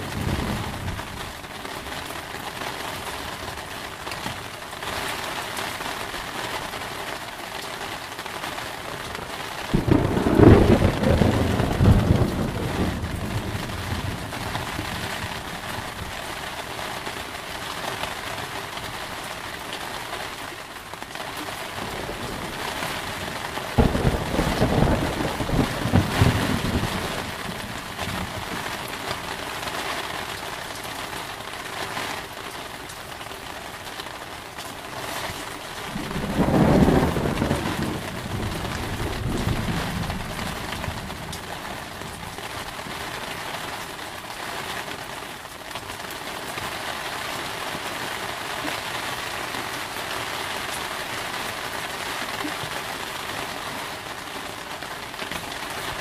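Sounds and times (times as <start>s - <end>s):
thunder rumbling: 0.0s - 1.4s, 9.0s - 16.1s, 21.8s - 29.4s, 35.8s - 42.9s
steady rain: 0.0s - 56.0s.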